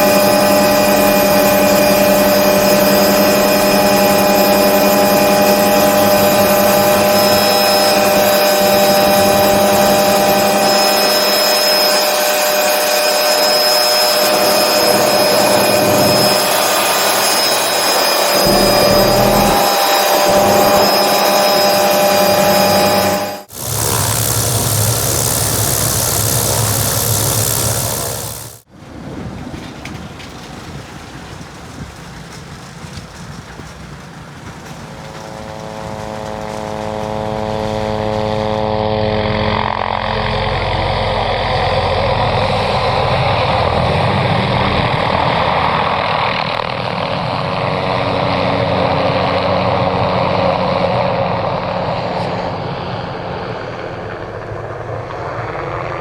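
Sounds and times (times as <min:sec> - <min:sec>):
helicopter engine tone: 0:00.0 - 0:28.7, 0:34.2 - 0:44.8
helicopter rotor wash rushing: 0:00.0 - 0:28.8, 0:31.3 - 0:45.6.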